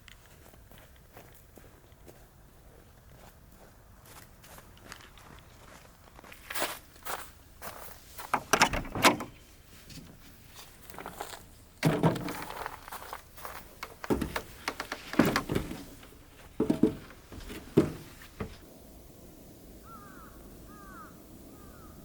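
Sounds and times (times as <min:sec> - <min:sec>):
irregular knocks and thuds: 0:08.3 - 0:10.2, 0:11.8 - 0:12.9, 0:13.5 - 0:18.6.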